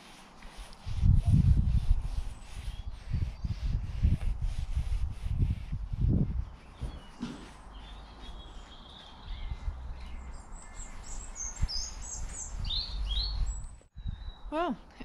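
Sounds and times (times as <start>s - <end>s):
rubbing sound: 0.0s - 13.8s
small birds chirping: 0.0s - 15.0s.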